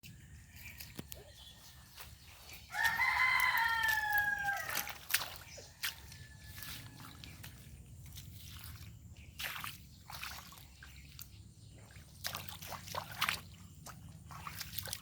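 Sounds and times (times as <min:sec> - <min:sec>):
rooster crowing: 0:02.7 - 0:05.1.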